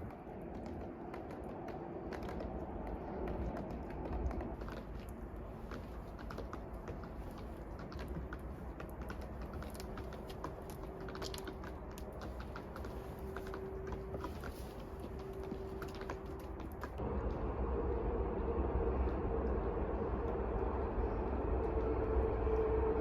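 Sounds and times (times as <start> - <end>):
small clicks and crackles: 0.0 - 17.4
low rumble: 15.0 - 23.0.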